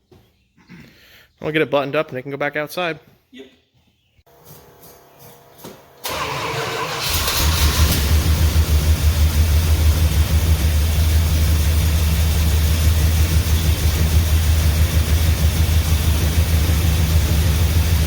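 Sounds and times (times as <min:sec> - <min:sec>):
truck engine starting and idling: 0:06.0 - 0:18.0.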